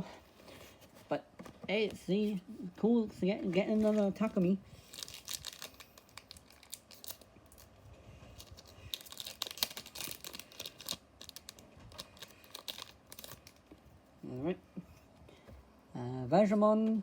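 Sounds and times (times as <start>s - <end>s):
cards rustling: 3.2s - 7.2s
foil pack crinkling and tearing: 3.6s - 7.7s, 8.3s - 13.7s.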